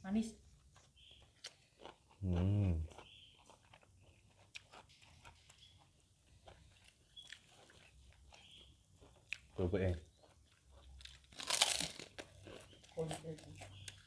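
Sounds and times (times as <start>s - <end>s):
person chewing food: 0.5s - 14.0s
person humming: 2.2s - 2.8s.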